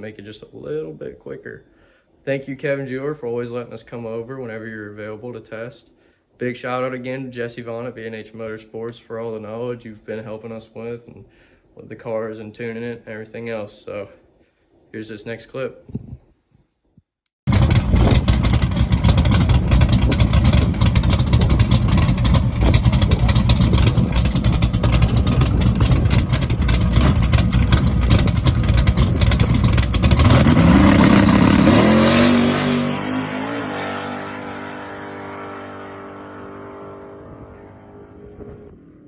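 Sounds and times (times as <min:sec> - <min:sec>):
loud choppy car engine: 0:17.5 - 0:39.0.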